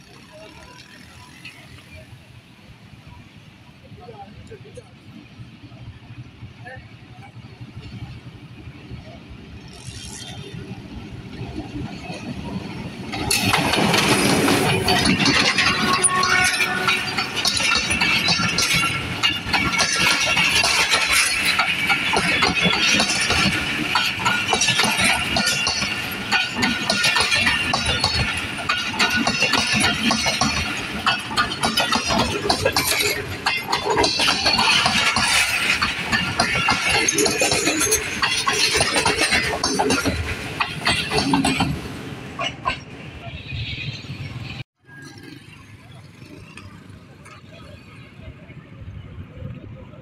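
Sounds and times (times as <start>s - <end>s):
locomotive rushing past: 0.0s - 50.0s
train wheels clattering on rails: 5.7s - 43.0s.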